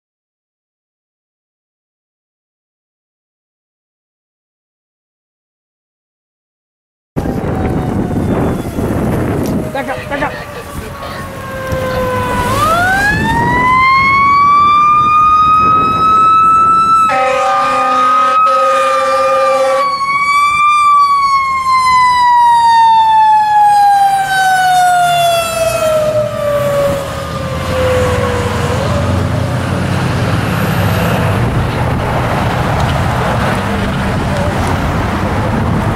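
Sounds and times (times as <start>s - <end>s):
fire engine siren wailing: 7.2s - 35.9s
truck engine and road noise: 7.2s - 35.9s
air horn blasts: 17.1s - 20.0s.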